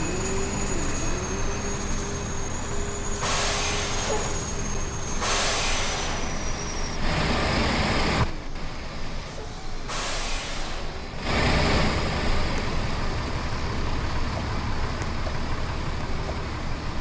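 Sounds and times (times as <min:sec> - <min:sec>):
hissing rush: 0:00.0 - 0:07.0
truck engine whine: 0:00.0 - 0:17.0.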